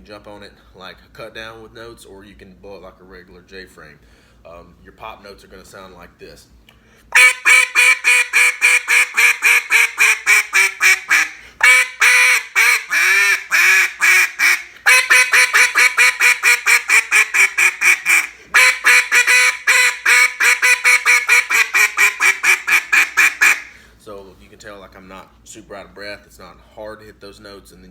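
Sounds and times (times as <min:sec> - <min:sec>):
brief breaths: 0:04.0 - 0:04.4, 0:06.7 - 0:07.2, 0:11.4 - 0:11.6, 0:23.6 - 0:24.0
duck call quacking: 0:07.2 - 0:23.8.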